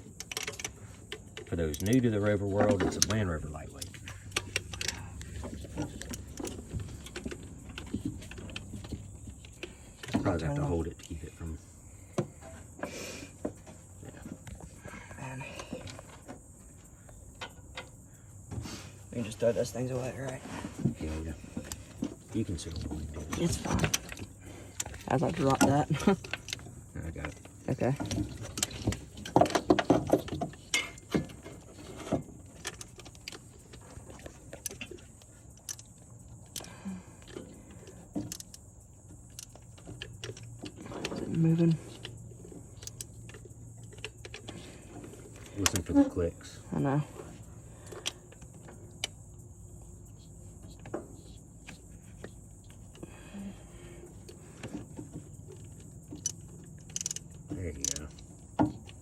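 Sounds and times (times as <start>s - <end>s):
metal parts and tools clicking: 0.0s - 10.2s, 21.6s - 46.6s, 55.0s - 59.0s
steady low hum: 0.0s - 59.0s.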